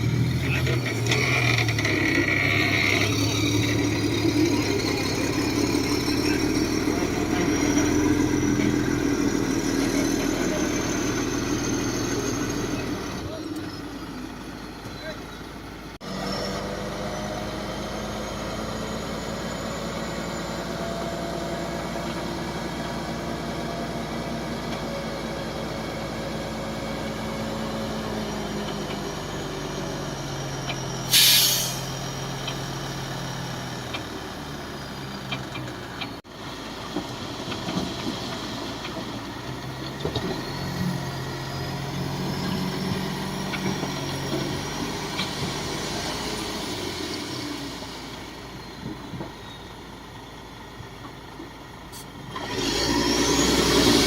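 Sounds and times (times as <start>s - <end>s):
diesel machinery engine running: 0.0s - 54.0s
loud hiss of air: 31.1s - 31.9s.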